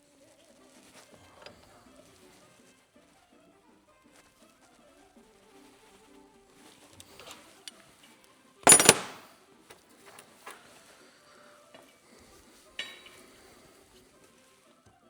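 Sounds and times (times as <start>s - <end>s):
metal parts and tools clinking: 8.6s - 9.2s
ringing metallic clank: 8.7s - 9.2s.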